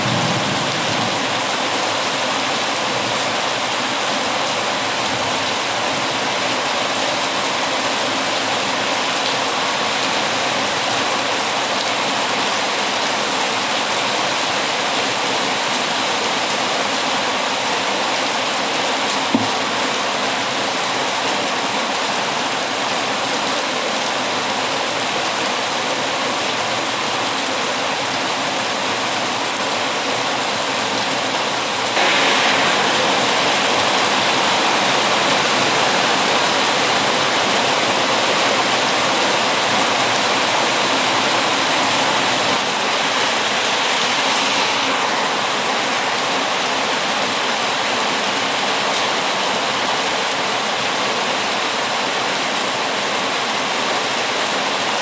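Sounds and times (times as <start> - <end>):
heavy rain: 0.0 - 55.0
sharp pop: 19.3 - 19.6, 32.0 - 36.4.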